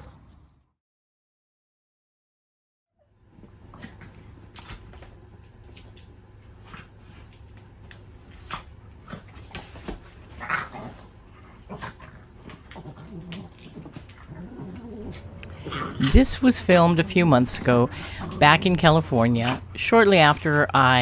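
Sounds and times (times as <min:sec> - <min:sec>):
steady low hum: 0:03.3 - 0:21.0
dogs scuffling: 0:03.4 - 0:21.0
dog vocalisation: 0:11.7 - 0:16.5.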